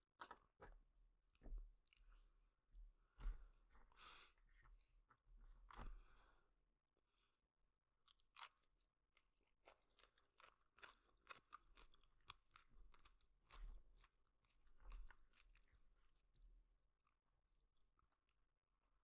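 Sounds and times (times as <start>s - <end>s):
chewing noodles: 8.1s - 16.4s.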